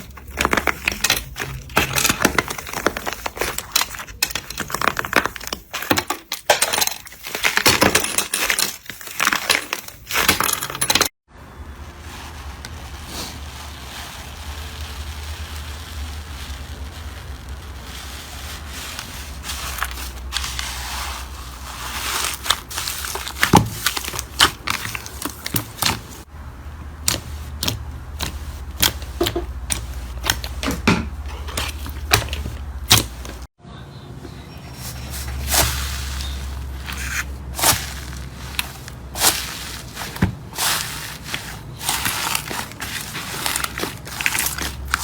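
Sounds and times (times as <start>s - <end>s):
slime crackling when squeezed: 12.3s - 19.0s.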